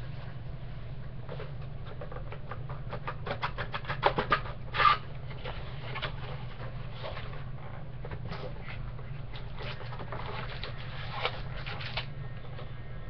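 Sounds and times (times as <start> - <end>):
steady low hum: 0.0 - 13.0
packaging crackling and rustling: 8.0 - 12.1.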